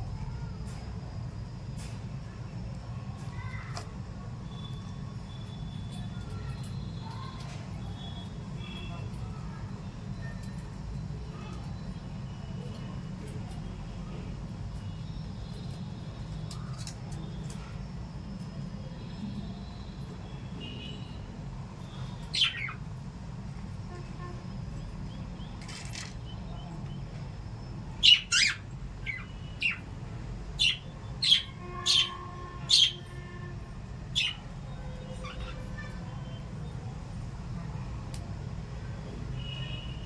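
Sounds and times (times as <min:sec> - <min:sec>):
parrots chirping: 0:22.2 - 0:22.8, 0:27.6 - 0:30.0, 0:30.6 - 0:33.1, 0:34.0 - 0:34.5, 0:35.1 - 0:36.4.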